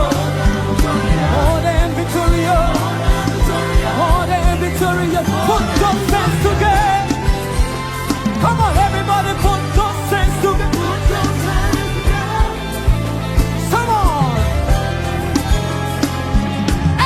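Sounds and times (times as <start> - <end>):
person singing: 0.0 - 7.6
bass and keyboard notes: 0.0 - 17.0
steady drum beat: 0.0 - 17.0.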